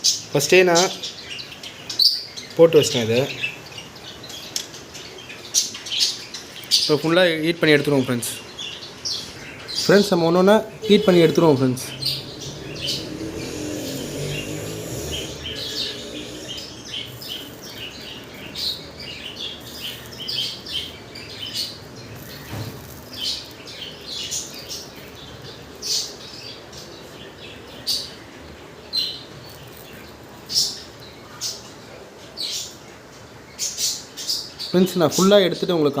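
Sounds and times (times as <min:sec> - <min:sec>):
low steady background noise: 0:00.0 - 0:36.0
small birds chirping: 0:00.0 - 0:36.0.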